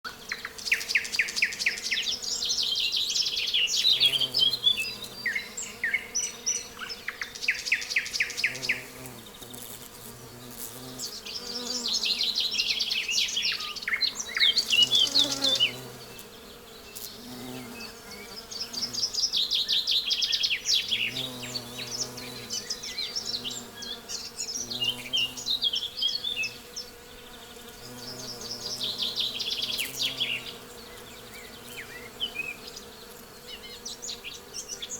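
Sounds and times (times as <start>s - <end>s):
bees humming: 0.1s - 34.9s.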